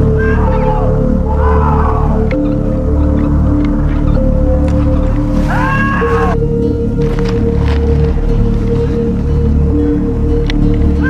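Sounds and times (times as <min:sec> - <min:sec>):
distorted wavering cry: 0:00.0 - 0:06.6
eerie droning music: 0:00.0 - 0:11.0
low rumble: 0:00.0 - 0:11.0.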